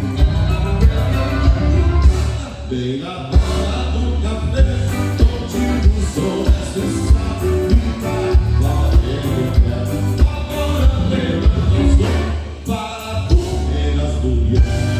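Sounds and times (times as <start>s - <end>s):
low drum beat: 0.0s - 2.5s, 3.4s - 3.8s, 4.6s - 12.4s, 14.6s - 14.9s
live band music with singing: 0.0s - 14.9s.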